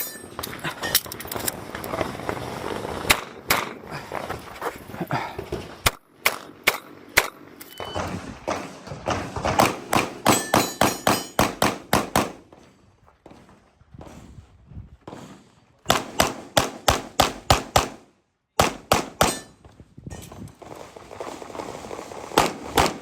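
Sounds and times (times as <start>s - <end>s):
pistol firing rapid shots: 9.5s - 12.4s, 15.9s - 19.4s, 22.3s - 23.0s.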